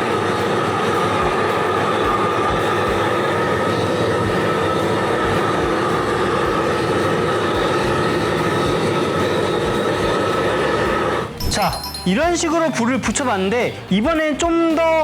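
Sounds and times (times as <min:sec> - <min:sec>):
gas torch roaring: 0:00.0 - 0:11.5.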